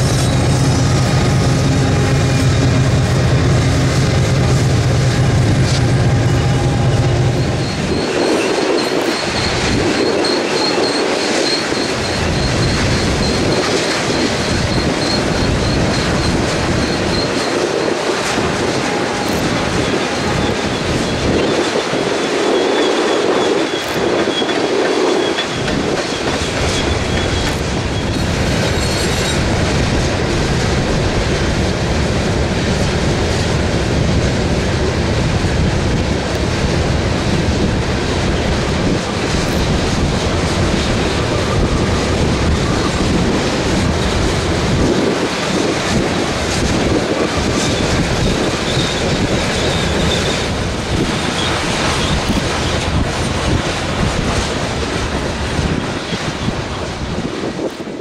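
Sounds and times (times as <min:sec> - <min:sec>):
high wheel squeal: 0:00.0 - 0:29.6, 0:40.7 - 0:53.6
freight train wheels clattering on rail: 0:00.0 - 0:58.0.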